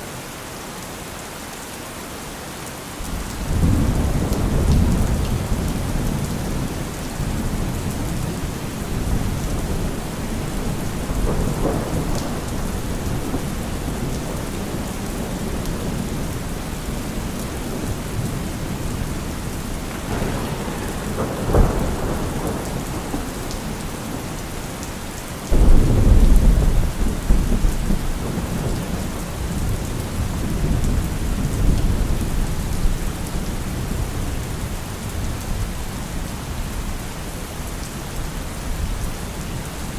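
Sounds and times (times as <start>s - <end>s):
heavy rain falling: 0.0s - 39.9s
low rumble of thunder: 3.0s - 39.6s
sharp crack of thunder: 3.1s - 19.0s, 19.6s - 24.6s, 25.5s - 32.9s.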